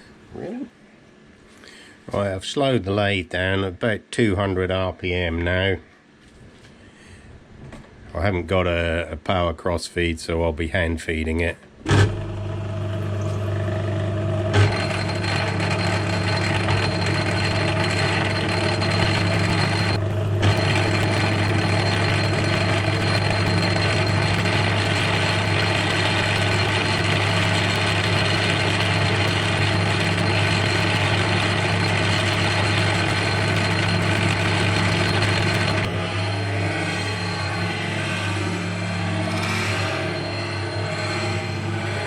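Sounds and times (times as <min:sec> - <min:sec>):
lathe motor hum: 0:12.1 - 0:42.0.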